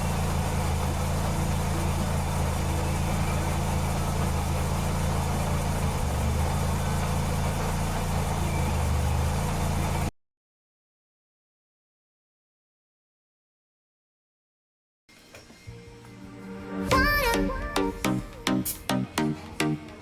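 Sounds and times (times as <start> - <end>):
car engine idling: 0.0 - 10.1.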